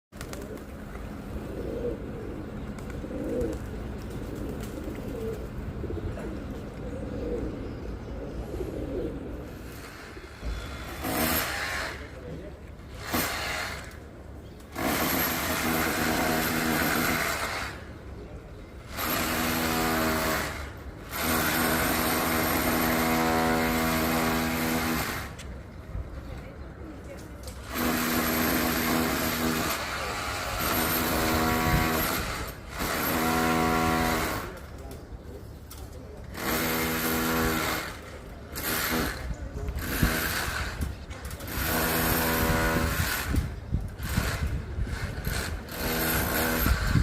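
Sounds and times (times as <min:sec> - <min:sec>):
pigeon cooing: 0:00.2 - 0:10.7.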